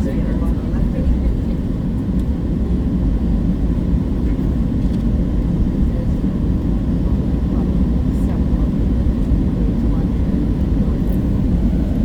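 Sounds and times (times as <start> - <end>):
airliner engine rumble in cabin: 0.0 - 12.0.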